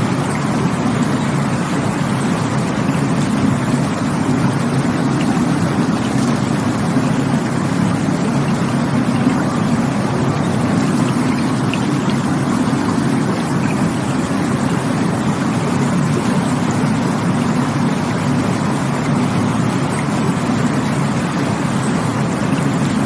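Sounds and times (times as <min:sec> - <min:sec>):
rushing water roar: 0:00.0 - 0:23.0.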